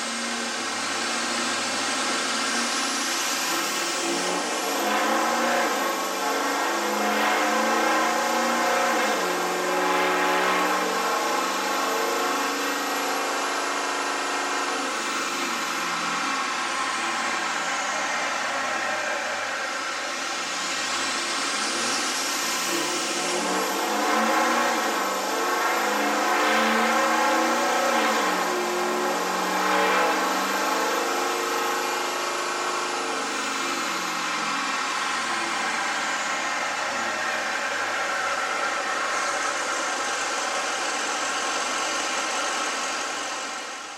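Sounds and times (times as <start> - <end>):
pickup engine revving: 0.1 - 43.7
high whine: 11.4 - 29.0, 30.1 - 43.9.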